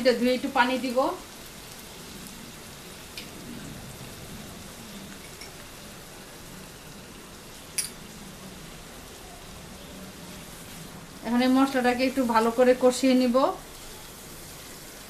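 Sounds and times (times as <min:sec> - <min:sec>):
onions sizzling in a frying pan: 0:00.0 - 0:15.0.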